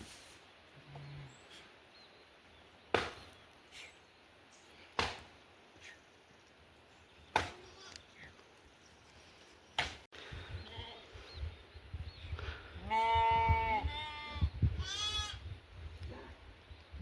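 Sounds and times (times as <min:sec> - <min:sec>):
sharp chopping strikes: 0:02.9 - 0:03.3, 0:05.0 - 0:05.4, 0:07.3 - 0:07.6, 0:09.8 - 0:10.0.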